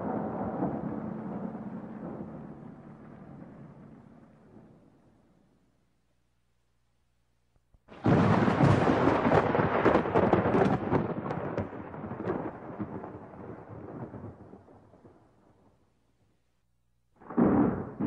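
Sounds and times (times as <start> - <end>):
loud crash with crackles: 7.9 - 14.4.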